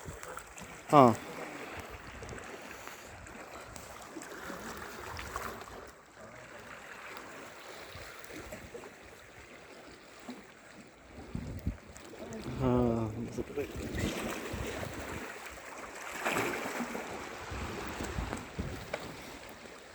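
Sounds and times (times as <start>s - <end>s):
sea washing: 0.0s - 19.9s
wind rumbling on microphone: 11.1s - 15.6s, 17.1s - 19.4s.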